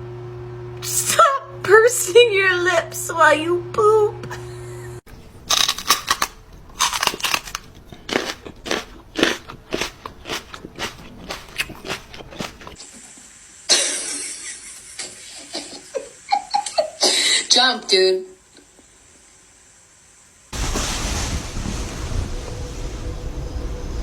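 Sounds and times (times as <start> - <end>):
crunching clicks: 5.4 - 12.8
hiss: 19.2 - 24.0.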